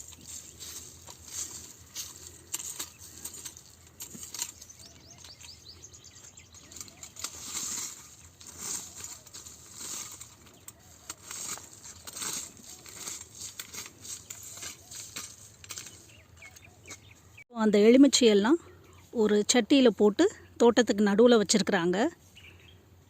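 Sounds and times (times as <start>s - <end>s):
clicks and rustling: 0.0s - 5.6s, 6.2s - 17.1s
bird chirps: 2.8s - 7.5s, 15.8s - 17.8s.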